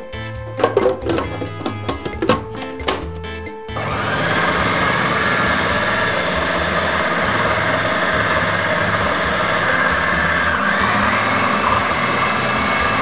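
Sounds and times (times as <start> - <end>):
background music with clicking beats: 0.0 - 13.0
electric blender chopping: 3.8 - 13.0.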